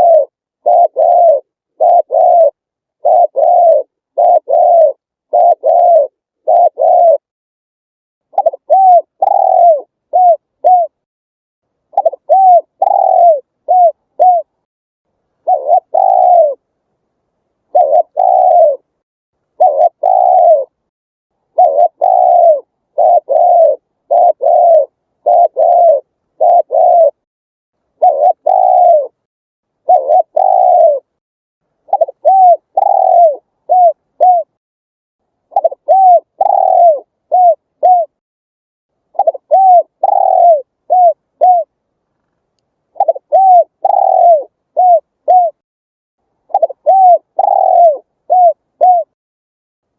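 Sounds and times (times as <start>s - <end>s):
dove cooing: 0.0s - 7.3s, 8.3s - 11.0s, 11.9s - 14.6s, 15.4s - 16.6s, 17.7s - 20.8s, 21.5s - 27.2s, 28.0s - 31.2s, 31.9s - 34.6s, 35.5s - 38.2s, 39.1s - 41.7s, 42.9s - 45.6s, 46.5s - 49.2s.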